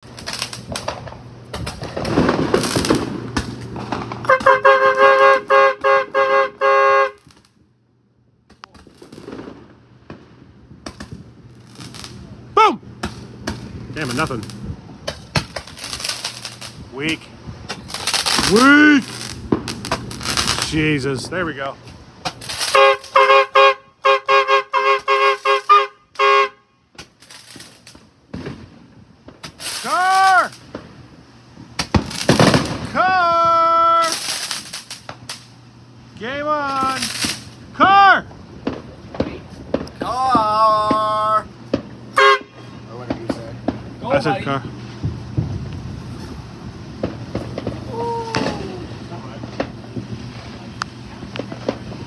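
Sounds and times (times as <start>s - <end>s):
crackling with sharp clicks: 0.0s - 6.1s, 7.1s - 7.7s, 8.4s - 12.2s, 13.0s - 20.8s, 26.9s - 28.6s, 29.2s - 32.7s, 34.1s - 35.6s, 36.7s - 37.6s, 38.6s - 40.0s, 49.4s - 52.0s
vehicle horn two-tone blasts: 4.3s - 7.3s, 22.7s - 26.8s, 42.2s - 42.7s.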